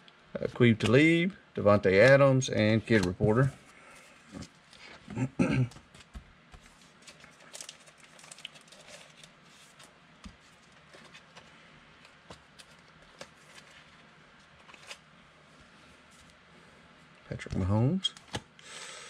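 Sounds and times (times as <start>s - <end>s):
trading cards rustling and clicking: 1.9s - 3.5s, 5.7s - 15.0s.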